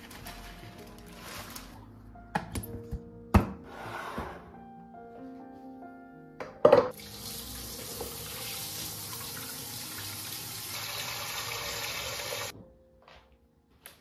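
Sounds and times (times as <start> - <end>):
water running: 6.9 - 12.5.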